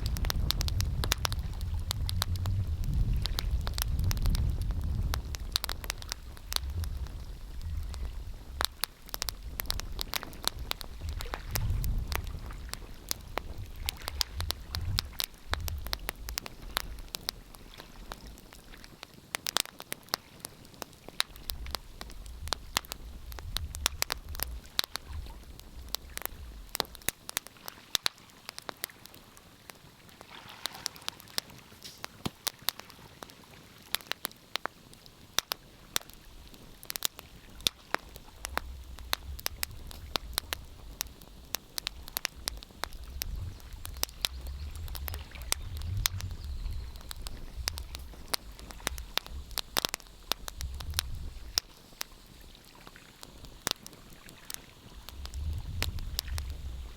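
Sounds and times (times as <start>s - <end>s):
wood fire crackling: 0.0s - 56.9s
low rumble: 43.0s - 49.6s.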